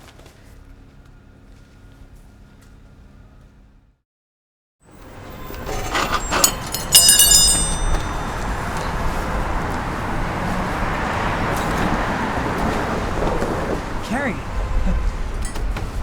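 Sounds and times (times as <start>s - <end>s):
steady traffic noise: 4.9s - 16.0s
high ringing clinking: 5.1s - 9.0s.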